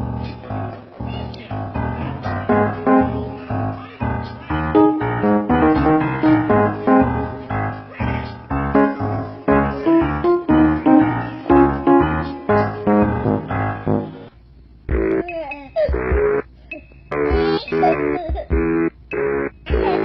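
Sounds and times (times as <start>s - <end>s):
piano music: 2.3s - 3.8s, 4.5s - 7.9s, 8.5s - 14.3s.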